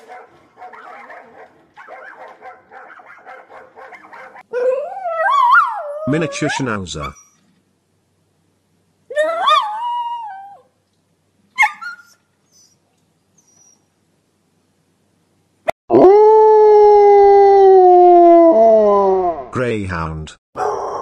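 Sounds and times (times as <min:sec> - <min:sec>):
dog yipping: 0:00.1 - 0:07.4, 0:09.1 - 0:10.6, 0:11.6 - 0:12.8
dog howling: 0:00.7 - 0:06.6, 0:09.1 - 0:10.6, 0:15.9 - 0:19.4, 0:20.6 - 0:21.0
dog whining: 0:03.8 - 0:07.5, 0:09.1 - 0:10.6, 0:11.6 - 0:12.8, 0:13.4 - 0:13.8.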